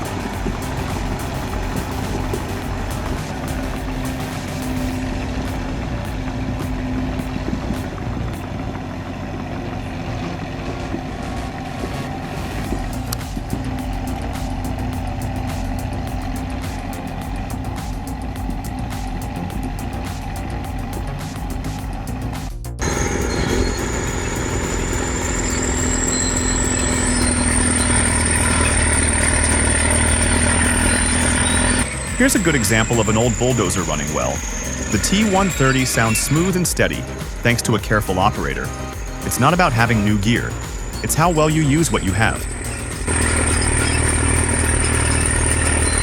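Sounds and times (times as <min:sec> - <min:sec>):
bulldozer diesel engine running: 0:00.0 - 0:46.0
thin high whine: 0:22.7 - 0:46.0.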